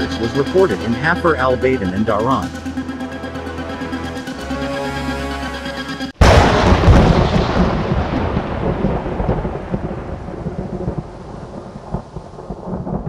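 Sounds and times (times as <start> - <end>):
thunder rumbling: 6.2 - 13.0.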